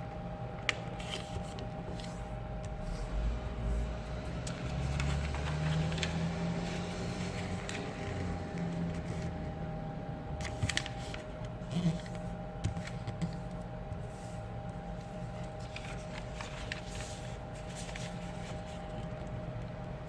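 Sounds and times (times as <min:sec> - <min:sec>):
steady low hum: 0:00.0 - 0:20.0
paper being folded: 0:00.6 - 0:03.3, 0:04.4 - 0:09.5, 0:10.4 - 0:19.8
sharp paper crinkles: 0:10.4 - 0:13.2, 0:15.3 - 0:19.3.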